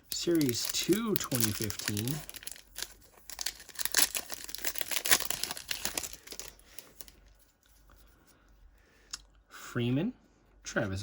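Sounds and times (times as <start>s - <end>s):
wrapper being torn and crinkled: 0.0s - 7.2s.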